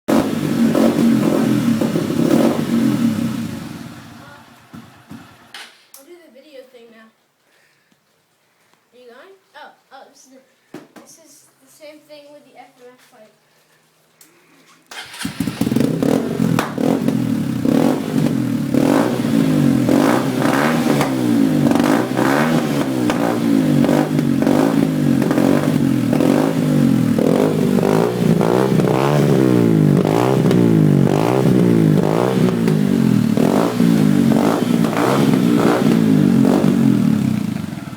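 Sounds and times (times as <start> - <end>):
dirt bike engine revving: 0.1 - 5.5, 15.0 - 37.9.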